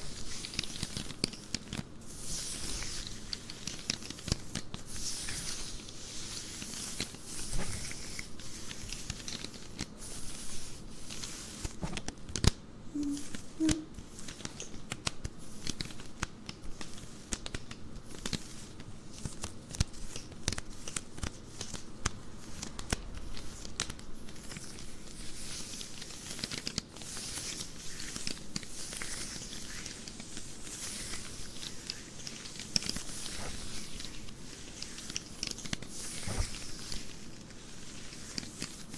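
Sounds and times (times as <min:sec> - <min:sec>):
scratching on nylon stockings: 0:13.0 - 0:38.9.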